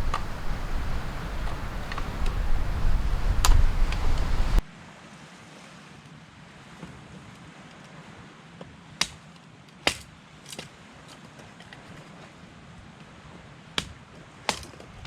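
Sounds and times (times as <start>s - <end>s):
sharp clicks: 0.0s - 4.6s
wind buffeting microphone: 0.0s - 4.6s
surf washing on beach: 0.0s - 9.0s.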